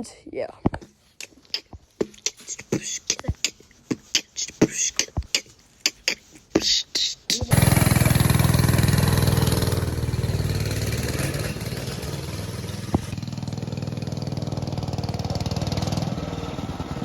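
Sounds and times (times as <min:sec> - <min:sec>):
mini bike engine idling: 0:07.5 - 0:17.0.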